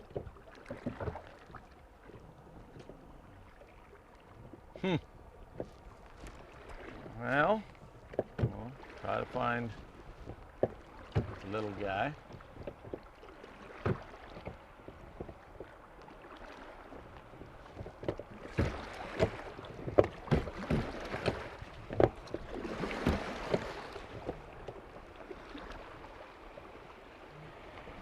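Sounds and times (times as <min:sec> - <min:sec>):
knocks on a boat: 0:00.0 - 0:01.6, 0:05.5 - 0:05.8, 0:08.0 - 0:08.8, 0:09.7 - 0:13.1, 0:13.7 - 0:15.8, 0:17.3 - 0:24.8
water washing: 0:05.6 - 0:25.9.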